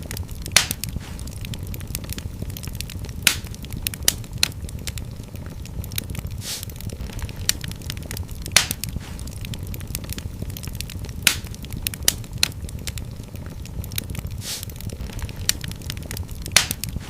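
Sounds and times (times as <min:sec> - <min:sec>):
fire crackling and popping: 0:00.0 - 0:17.0
fire hiss: 0:00.0 - 0:17.0
low rumble of flames: 0:00.0 - 0:17.0.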